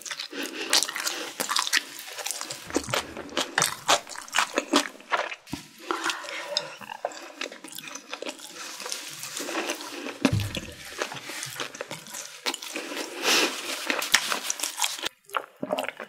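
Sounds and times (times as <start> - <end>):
soft low thump: 2.7 - 5.2, 10.3 - 11.1
person chewing wetly: 13.9 - 16.0.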